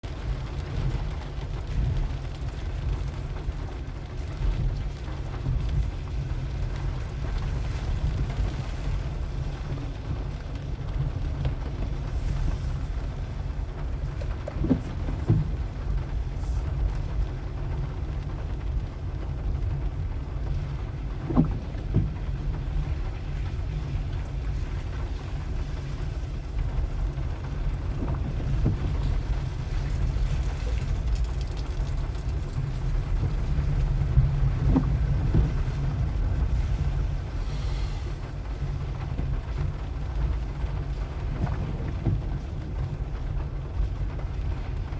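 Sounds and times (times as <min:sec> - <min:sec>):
car engine and tyres rumbling: 0:00.0 - 0:44.9
car knocking over bumps: 0:13.4 - 0:16.2, 0:19.5 - 0:37.1.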